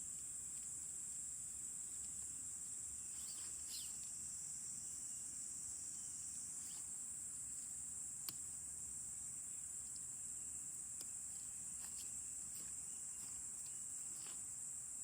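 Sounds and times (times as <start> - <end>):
insects trilling: 0.0 - 15.0
bird chirps: 3.1 - 4.1.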